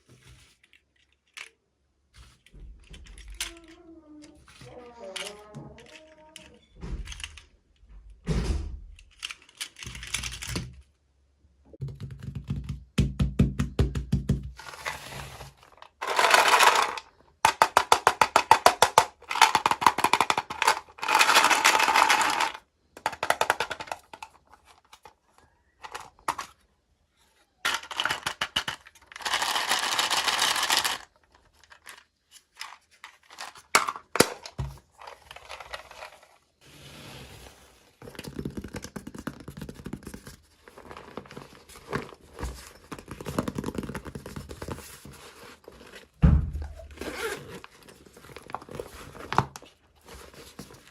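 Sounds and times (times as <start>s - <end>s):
plastic and cardboard rustling: 14.6s - 50.9s.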